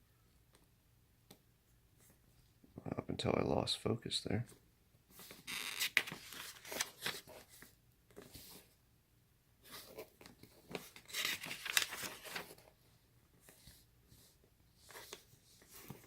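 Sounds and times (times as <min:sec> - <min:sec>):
packaging rustling and crinkling: 0:05.2 - 0:07.7, 0:09.9 - 0:12.7.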